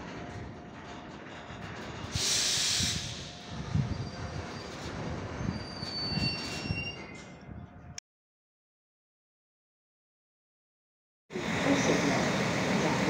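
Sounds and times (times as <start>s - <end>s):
freight train rolling past: 0.0s - 8.0s, 11.3s - 13.0s
loud hiss: 2.1s - 3.5s
high-pitched wheel squeal: 2.7s - 7.4s.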